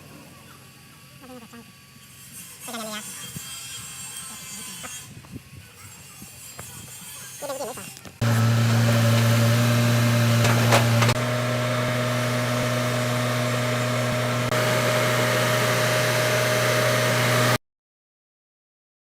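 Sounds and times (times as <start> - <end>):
machine drone: 8.2 - 17.6.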